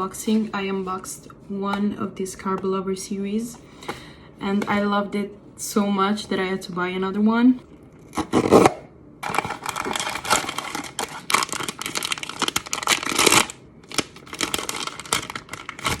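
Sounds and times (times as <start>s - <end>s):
plastic wrapping crinkling and tearing: 8.1s - 16.0s
packaging rustling: 8.2s - 16.0s.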